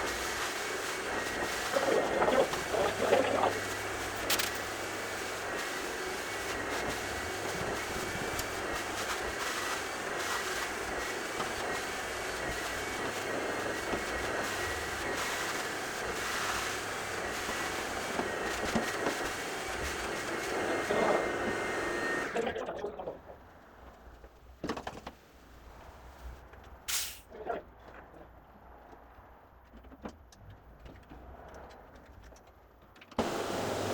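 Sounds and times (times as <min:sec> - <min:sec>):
carpet cleaning machine droning: 0:00.0 - 0:22.6, 0:33.2 - 0:33.9.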